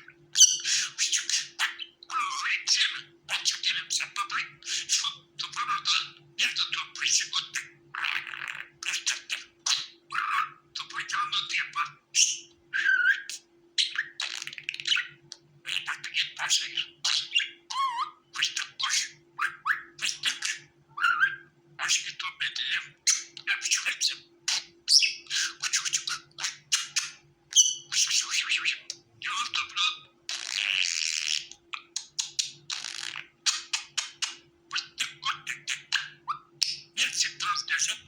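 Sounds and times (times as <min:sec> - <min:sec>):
budgerigar chattering: 0:00.0 - 0:38.0
faint steady hum: 0:00.0 - 0:38.0.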